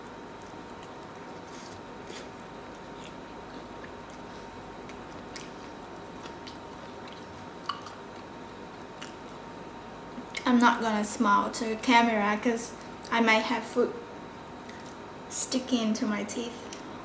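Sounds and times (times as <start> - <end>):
person chewing food: 0.0 - 9.4.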